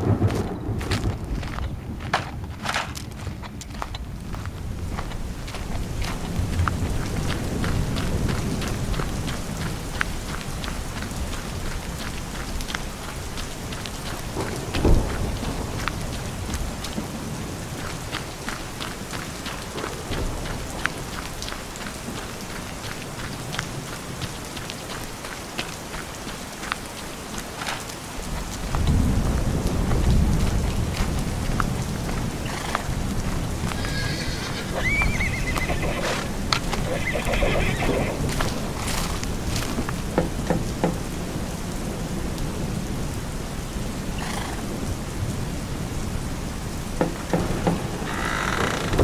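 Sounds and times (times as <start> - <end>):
low rumble: 0.0 - 7.2
thunder rolling: 0.0 - 10.6, 14.3 - 18.2, 28.6 - 41.5, 47.0 - 49.0
rain falling: 0.0 - 49.0
horse whinnying: 33.7 - 39.0.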